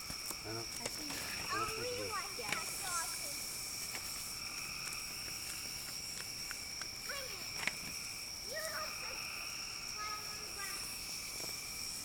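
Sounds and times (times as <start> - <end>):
chorus of night insects: 0.0 - 12.0
sharp clicks and crackles: 0.1 - 1.2, 2.4 - 2.8.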